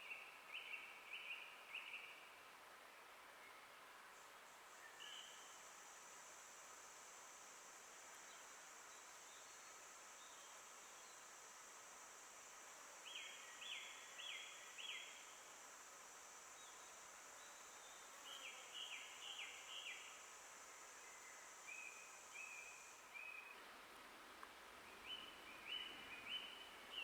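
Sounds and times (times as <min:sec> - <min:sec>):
faint high-pitched forest hiss: 0:00.0 - 0:27.0
bird singing: 0:24.9 - 0:27.0.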